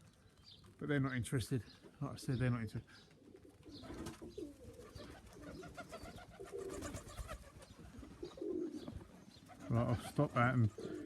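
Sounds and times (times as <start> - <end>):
pigeons cooing: 2.3 - 11.0.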